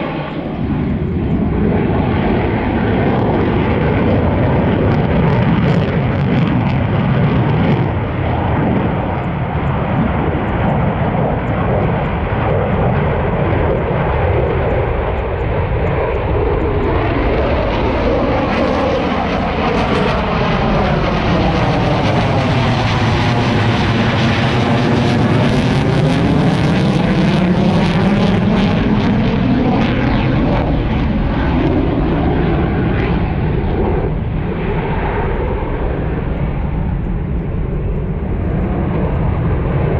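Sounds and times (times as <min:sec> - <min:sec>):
airplane flying past: 0:00.0 - 0:39.9.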